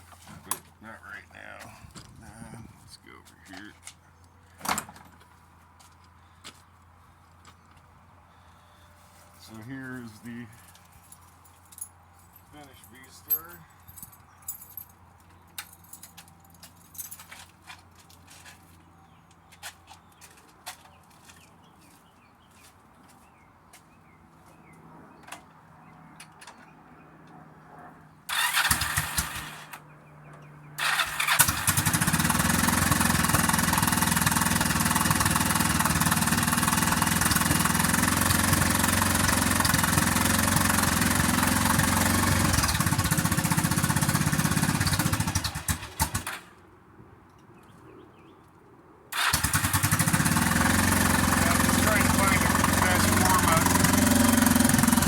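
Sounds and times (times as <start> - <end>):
motorcycle engine starting and idling: 28.3 - 29.9, 30.8 - 46.6, 49.1 - 55.0.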